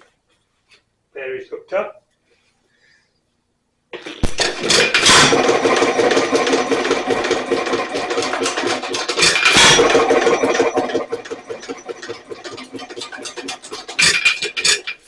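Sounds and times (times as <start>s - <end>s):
engine clattering: 4.0s - 15.0s.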